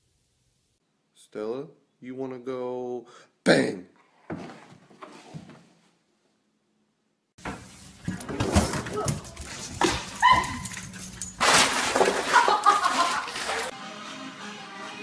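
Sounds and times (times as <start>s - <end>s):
dog barking and whining: 9.0s - 11.4s
dog yelping: 9.5s - 11.4s.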